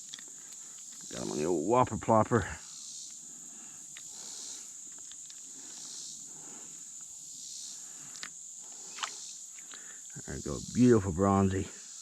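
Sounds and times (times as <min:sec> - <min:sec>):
insects trilling: 0:00.0 - 0:12.0
faint clicks: 0:03.9 - 0:04.2, 0:04.9 - 0:05.9, 0:08.1 - 0:10.2.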